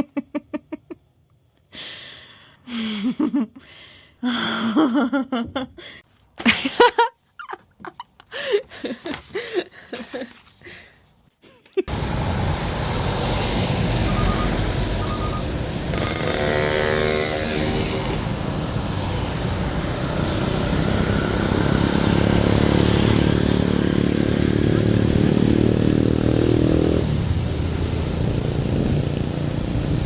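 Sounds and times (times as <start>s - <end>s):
approaching vehicle rumble: 11.9s - 30.0s
roadside traffic noise: 11.9s - 30.0s
truck engine passing: 11.9s - 30.0s
short high beeps: 14.1s - 15.5s.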